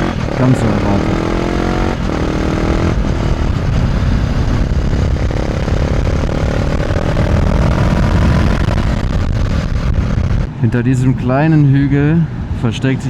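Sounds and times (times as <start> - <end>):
motorcycle engine running: 0.0 - 10.6
wind noise on microphone: 0.0 - 13.0.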